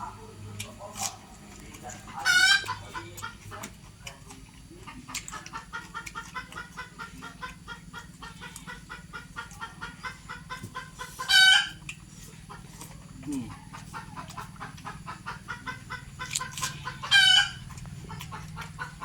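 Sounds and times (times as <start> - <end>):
chickens clucking: 0.0 - 19.0
chicken squawk: 2.1 - 3.4, 5.1 - 12.8, 13.4 - 19.0.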